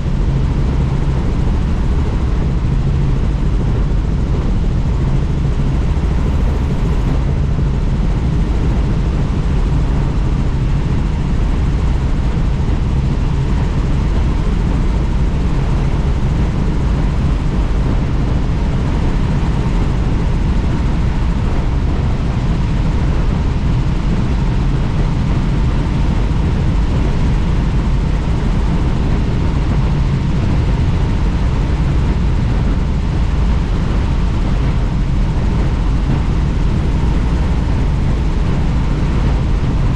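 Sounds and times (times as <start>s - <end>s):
helicopter rotor and engine noise: 0.0s - 39.9s
wind rushing: 0.0s - 39.9s.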